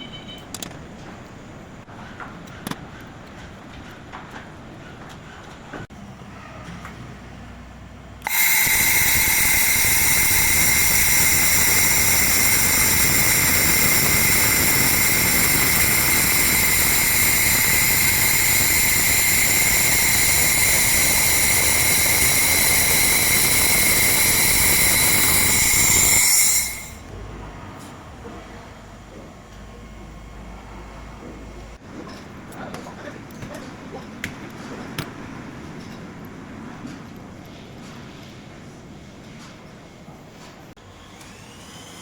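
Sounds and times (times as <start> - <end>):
laser machine high-pitched whine: 8.2 - 27.0.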